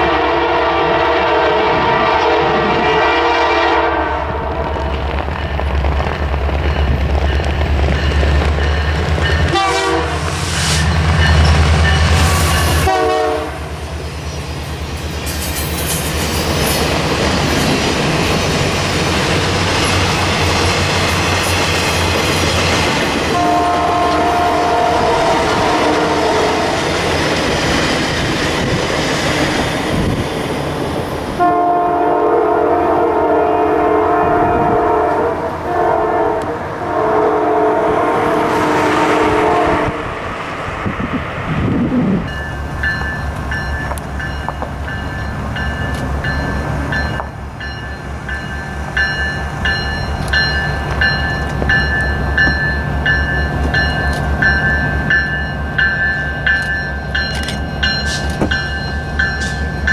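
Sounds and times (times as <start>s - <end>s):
train horn blasts: 0.0s - 4.7s, 9.5s - 10.4s, 11.8s - 13.8s, 23.3s - 26.9s, 31.4s - 40.2s
diesel locomotive engine rumbling: 0.0s - 59.9s
train wheel clatter: 4.6s - 9.8s, 42.4s - 59.9s.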